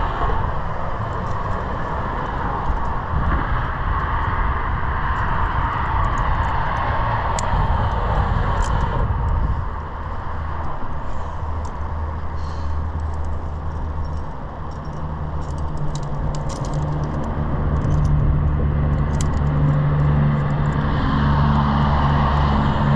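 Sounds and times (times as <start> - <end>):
low engine drone: 0.0 - 22.9
rush of passing vehicles: 0.0 - 22.9
light metallic clinks: 10.6 - 20.8.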